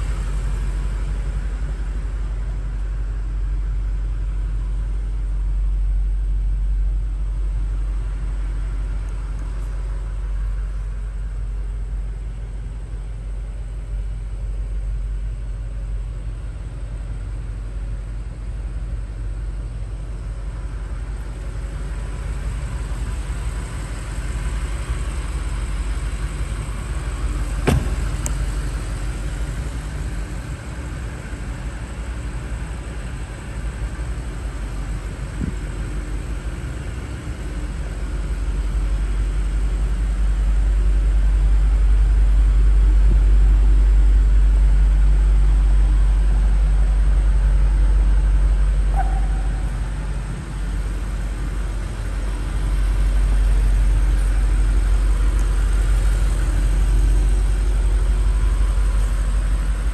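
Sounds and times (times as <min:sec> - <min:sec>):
car engine idling: 0:00.0 - 0:59.9
sharp knock: 0:27.7 - 0:28.2.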